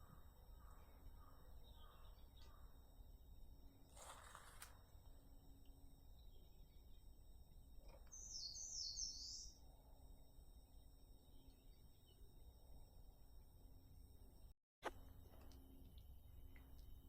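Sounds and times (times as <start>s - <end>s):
small bird chirping: 0.0s - 2.9s, 7.8s - 9.6s
faint outdoor background noise: 0.0s - 17.0s.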